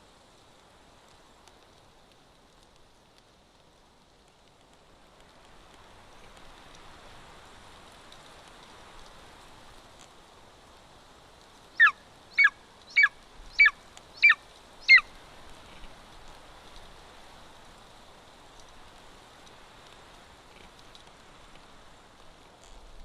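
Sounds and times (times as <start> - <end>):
eagle calling: 11.8 - 15.1.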